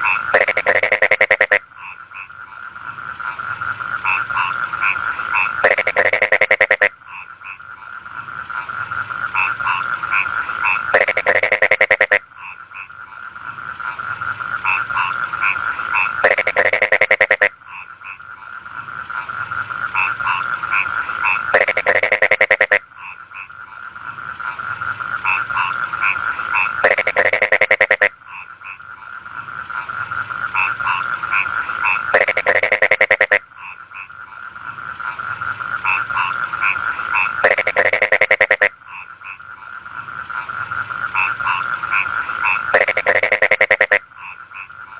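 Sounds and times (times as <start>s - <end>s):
frogs trilling chorus: 0.0s - 44.9s
loud pulsing frog croak: 0.0s - 44.9s.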